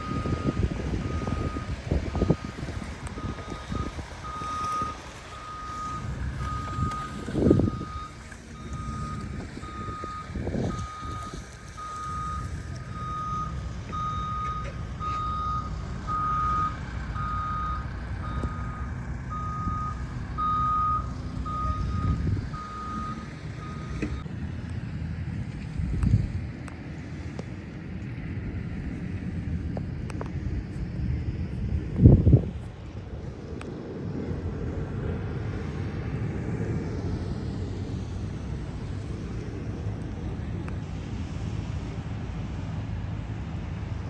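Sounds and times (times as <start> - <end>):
reversing alarm beeping: 0.0 - 24.2.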